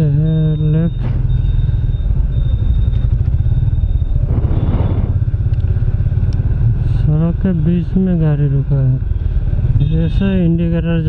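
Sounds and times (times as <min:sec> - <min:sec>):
motorcycle engine rumbling: 0:00.0 - 0:11.0
rush of noise: 0:03.7 - 0:05.9.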